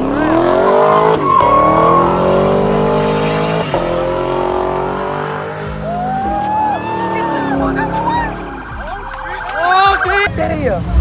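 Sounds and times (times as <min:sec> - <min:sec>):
car engine revving: 0:00.0 - 0:11.0
tyres squealing: 0:05.4 - 0:10.4.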